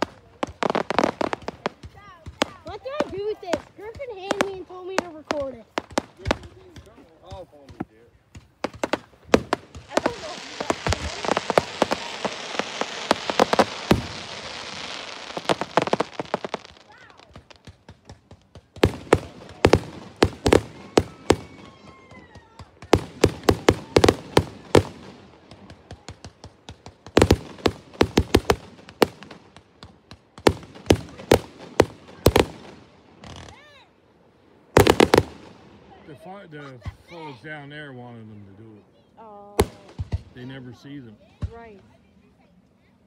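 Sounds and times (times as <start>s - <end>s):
firework shells popping and banging: 0.0s - 21.8s
fireworks crackling: 0.0s - 42.5s.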